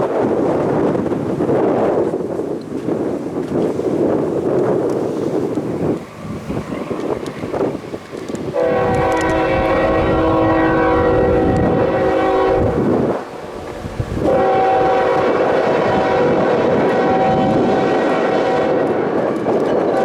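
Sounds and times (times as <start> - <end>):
freight train rumbling: 0.0 - 20.0
locomotive air horn blasts: 8.5 - 19.2.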